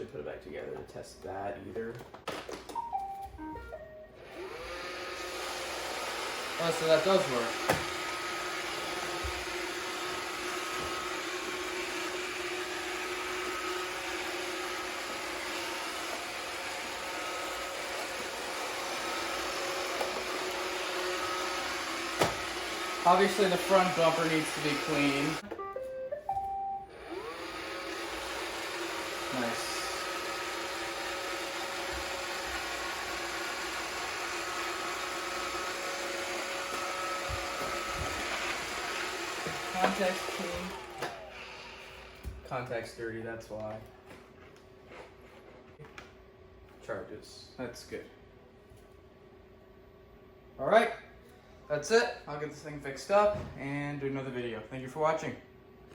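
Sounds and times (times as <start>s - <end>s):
robot vacuum motors whirring: 4.2s - 25.4s, 26.9s - 42.4s.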